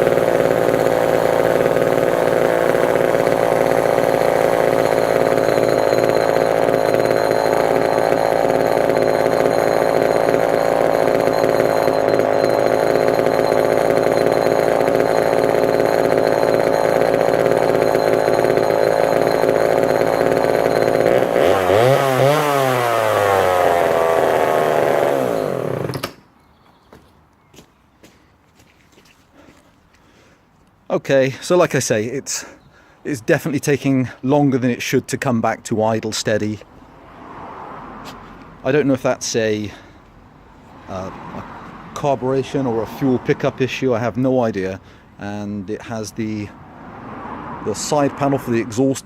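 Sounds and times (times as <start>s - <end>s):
chainsaw running at fast idle: 0.0s - 26.2s.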